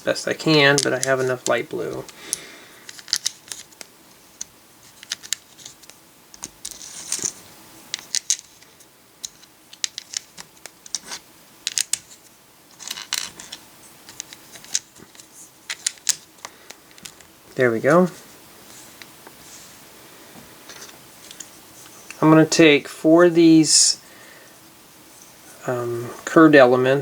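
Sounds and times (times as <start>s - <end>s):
plastic bricks clicking: 0.5s - 12.1s, 12.8s - 17.2s.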